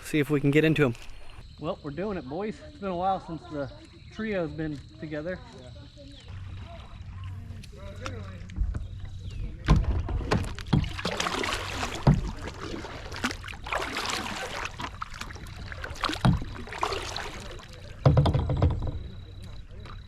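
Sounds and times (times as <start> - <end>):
paddle splashing through water: 6.3 - 20.0
sharp knocks: 18.0 - 19.1.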